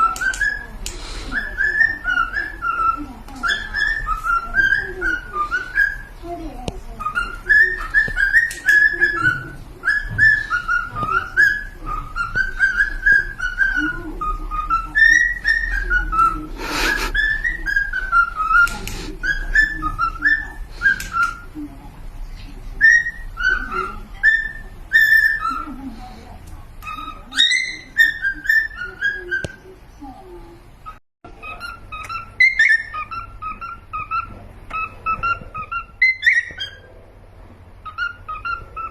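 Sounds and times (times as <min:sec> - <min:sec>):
cockatiel whistling: 0:00.0 - 0:06.2, 0:06.9 - 0:21.6, 0:22.8 - 0:25.8, 0:26.8 - 0:29.7, 0:30.8 - 0:36.9, 0:37.8 - 0:38.9
scratchy noises: 0:16.2 - 0:17.4.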